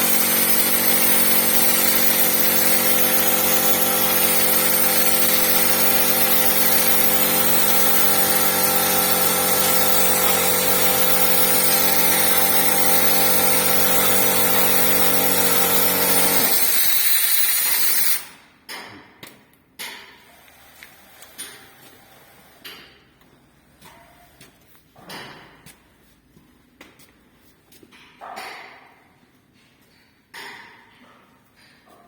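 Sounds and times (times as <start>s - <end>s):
power tool running: 0.0s - 18.3s.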